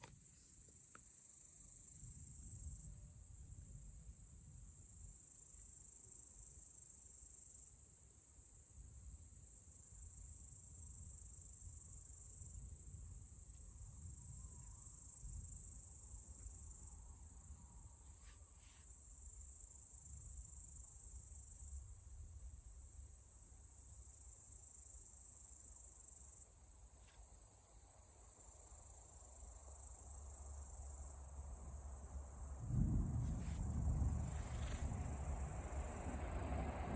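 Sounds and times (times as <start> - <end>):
insect chorus: 0.0 - 36.9
low wavering rumble: 32.6 - 36.9.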